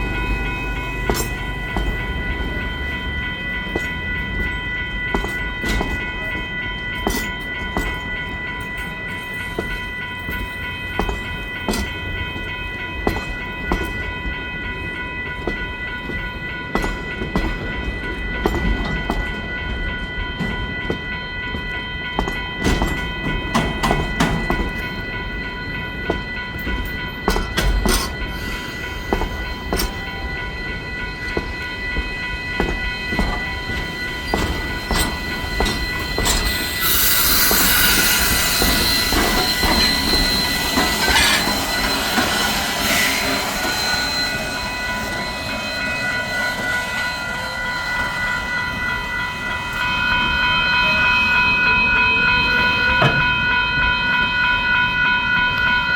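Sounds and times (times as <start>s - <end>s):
train rolling rumble: 0.0s - 55.9s
wheels and couplers clanking: 37.5s - 43.9s.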